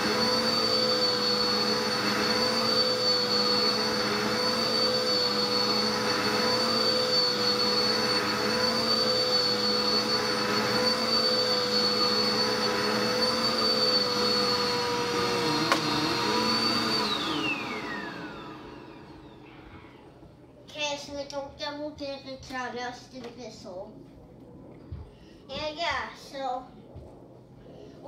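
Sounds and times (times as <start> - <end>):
motor spinning down: 0.0 - 20.2
vacuum cleaner motor whine: 0.0 - 20.6.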